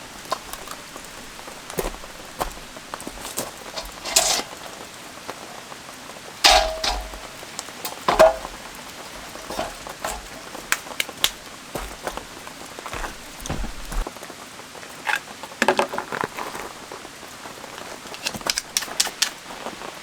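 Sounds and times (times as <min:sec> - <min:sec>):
rain falling: 0:00.0 - 0:20.0
metal cookware clanking: 0:00.3 - 0:05.0, 0:06.4 - 0:14.0.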